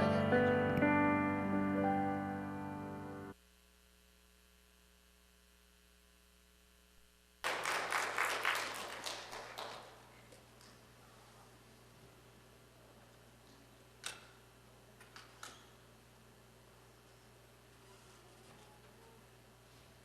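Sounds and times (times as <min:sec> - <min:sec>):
keyboard chord ringing: 0:00.0 - 0:03.3
faint hum: 0:00.0 - 0:20.0
congregation applause: 0:07.4 - 0:10.8.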